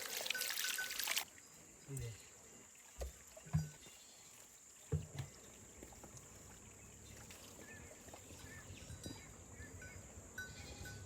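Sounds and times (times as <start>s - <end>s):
faint water trickling: 0.0s - 11.0s.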